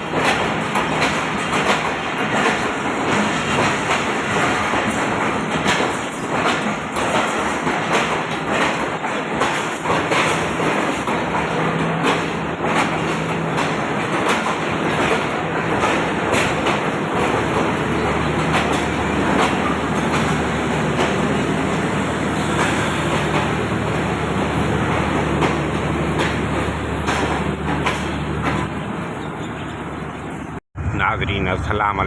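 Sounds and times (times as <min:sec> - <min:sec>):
train wheels clacking: 0:00.0 - 0:30.4
train rumble: 0:00.0 - 0:32.0
locomotive engine drone: 0:10.3 - 0:32.0.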